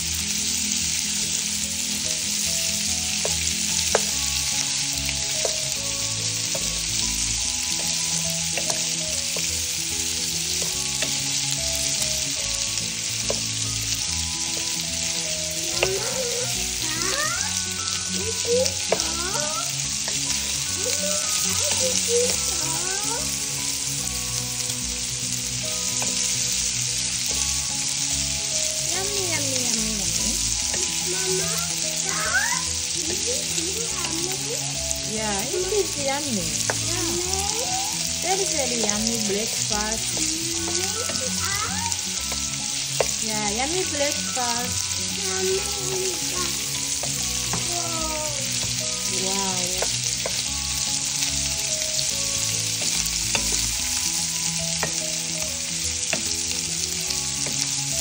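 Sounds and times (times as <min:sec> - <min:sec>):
sausages sizzling in a frying pan: 0:00.0 - 0:58.0
wooden spatula stirring: 0:02.0 - 0:23.9, 0:41.9 - 0:58.0.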